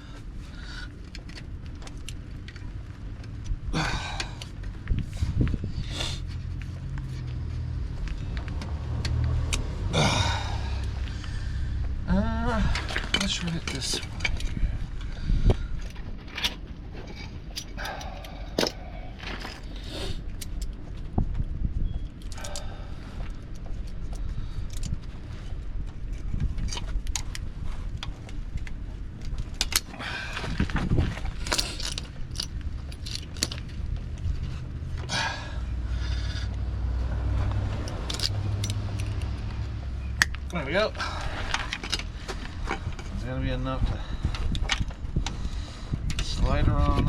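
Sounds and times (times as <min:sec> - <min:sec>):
steady low hum: 0:00.0 - 0:47.0
hand tools clinking on metal: 0:31.4 - 0:33.7, 0:37.8 - 0:39.4.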